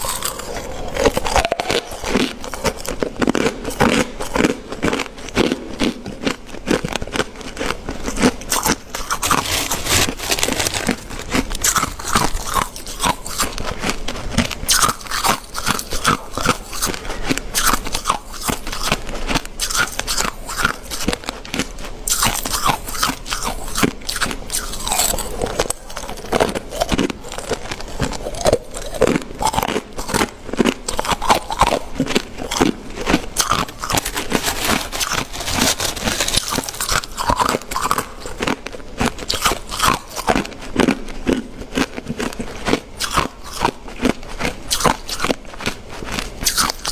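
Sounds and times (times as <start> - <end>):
ice being chewed: 0.0 - 46.9.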